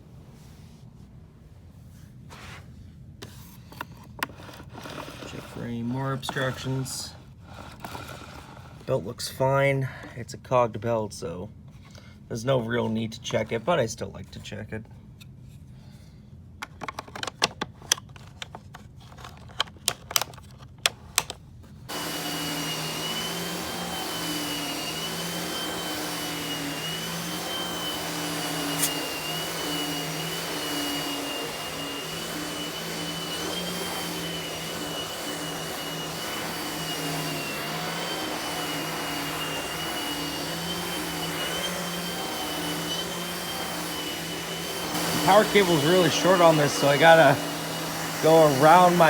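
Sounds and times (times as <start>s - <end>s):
vacuum cleaner whining: 3.2s - 10.1s, 21.9s - 49.0s.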